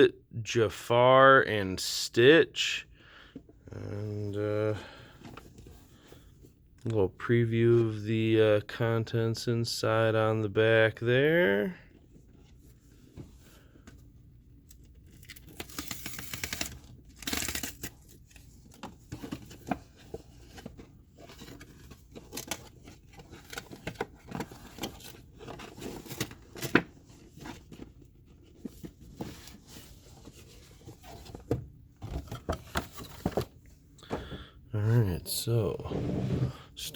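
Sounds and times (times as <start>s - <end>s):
packaging tearing and rustling: 15.1s - 18.3s.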